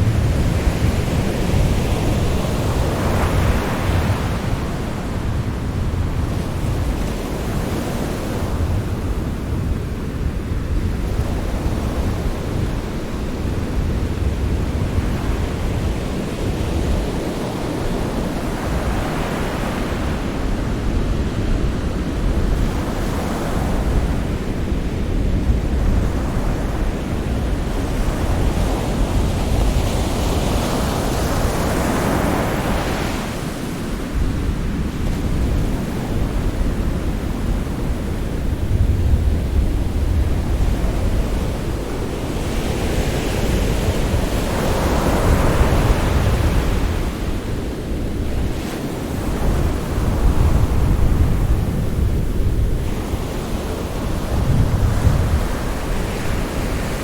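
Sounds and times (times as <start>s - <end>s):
sea waves rushing: 25.6s - 57.0s.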